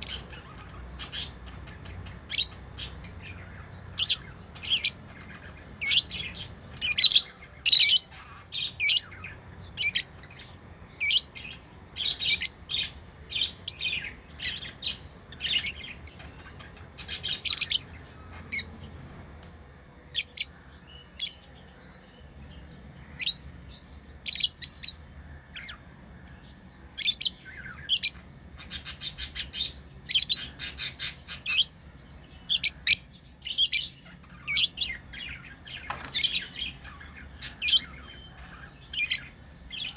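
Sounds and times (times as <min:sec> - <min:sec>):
lovebirds chirping: 0:00.0 - 0:19.2, 0:20.1 - 0:39.9.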